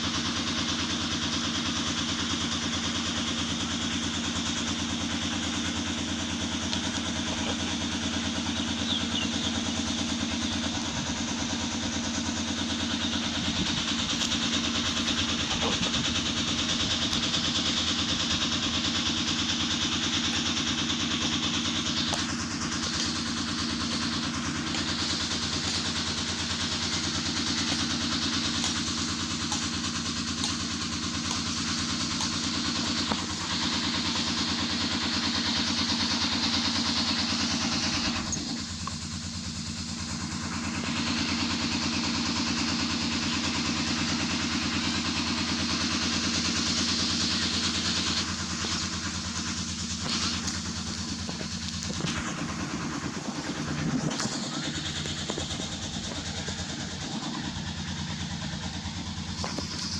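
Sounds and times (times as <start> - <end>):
engine humming: 1.5 - 59.9.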